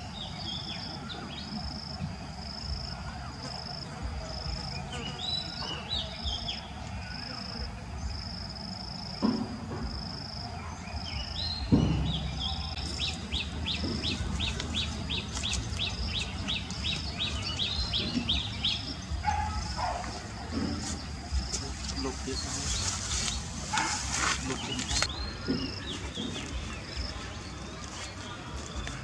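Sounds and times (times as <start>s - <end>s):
low rumble: 11.4s - 19.2s.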